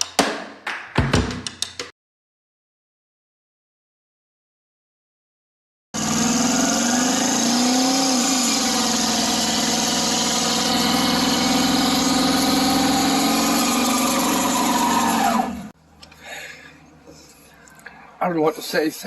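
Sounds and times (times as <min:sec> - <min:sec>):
engine running at high speed: 0:06.0 - 0:15.7
short rising whine: 0:06.0 - 0:15.7.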